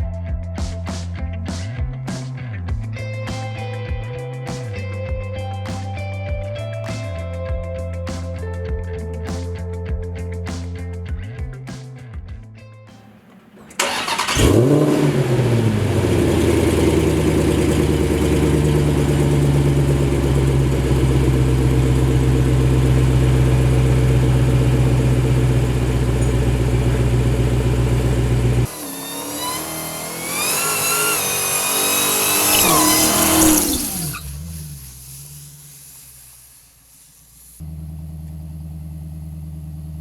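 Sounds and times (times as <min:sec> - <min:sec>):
car accelerating whine: 0:13.2 - 0:40.0
car engine revving high: 0:13.8 - 0:36.2.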